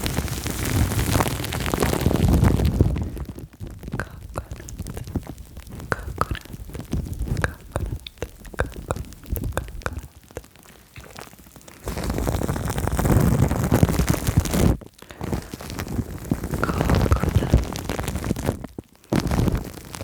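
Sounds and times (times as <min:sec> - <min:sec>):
small hollow mouth pops: 0:03.7 - 0:11.3, 0:16.5 - 0:17.8
wet tongue clicks: 0:03.9 - 0:11.3.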